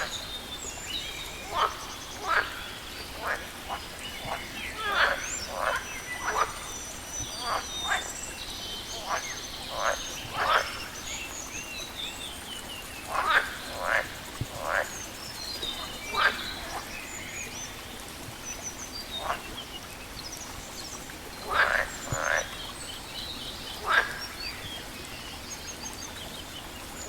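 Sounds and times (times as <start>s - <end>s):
birds chirping: 0.0s - 27.0s
frogs croaking: 0.0s - 27.0s.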